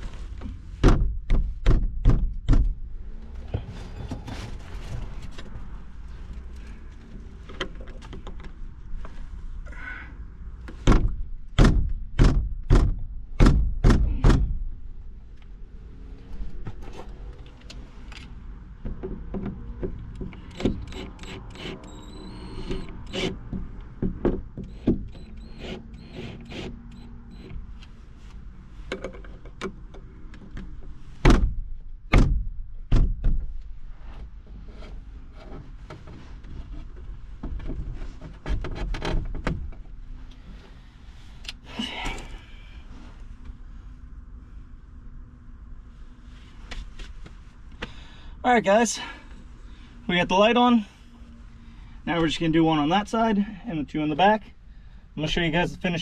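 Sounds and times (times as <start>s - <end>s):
sharp knocks and clunks: 0.8s - 2.8s, 10.7s - 14.6s, 22.7s - 25.2s, 30.4s - 33.5s.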